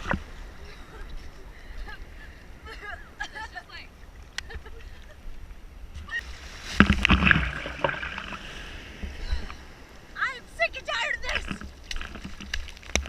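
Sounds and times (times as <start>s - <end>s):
ocean water churning: 0.0s - 13.0s
surf breaking: 5.9s - 13.0s.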